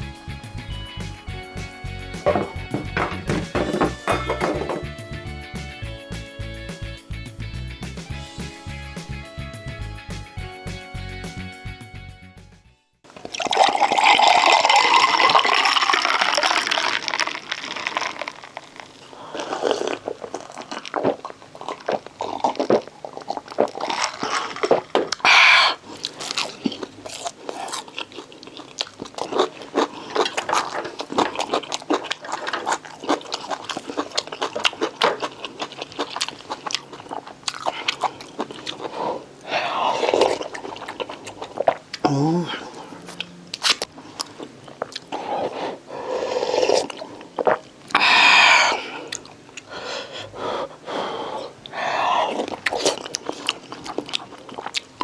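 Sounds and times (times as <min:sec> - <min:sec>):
wet chewing and smacking: 0:16.4 - 0:42.1, 0:42.8 - 0:45.6, 0:46.2 - 0:49.7, 0:52.2 - 0:55.0
person slurping: 0:45.0 - 0:49.2.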